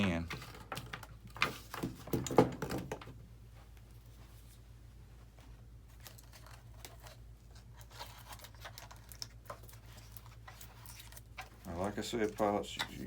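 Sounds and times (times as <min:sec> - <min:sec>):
clicks and rustles of handling parts: 0:00.0 - 0:04.6, 0:05.9 - 0:13.0
low electrical hum: 0:00.0 - 0:13.0.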